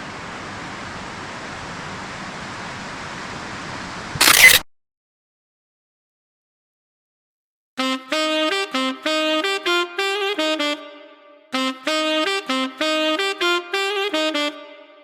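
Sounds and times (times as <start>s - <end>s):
saxophone melody: 7.8s - 15.0s.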